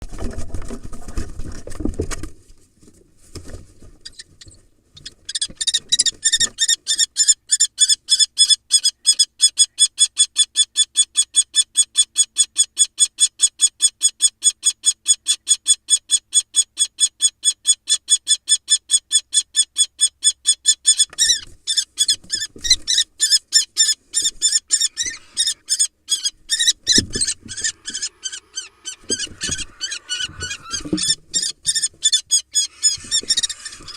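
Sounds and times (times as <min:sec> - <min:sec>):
dull thumps of birds scuffling: 0:00.0 - 0:06.6, 0:21.1 - 0:23.1, 0:26.4 - 0:28.1, 0:28.9 - 0:32.2
kestrel shrill alarm call: 0:06.0 - 0:33.9.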